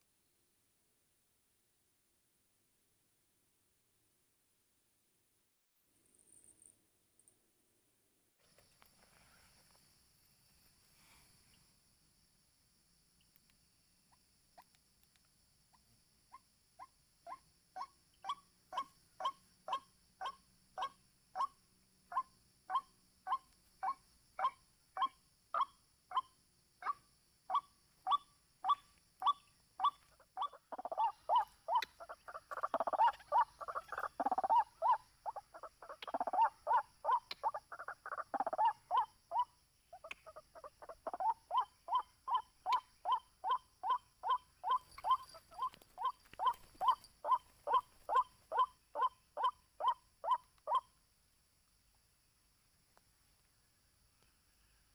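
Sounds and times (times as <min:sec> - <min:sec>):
waterhen croaking call: 0:28.1 - 0:39.1.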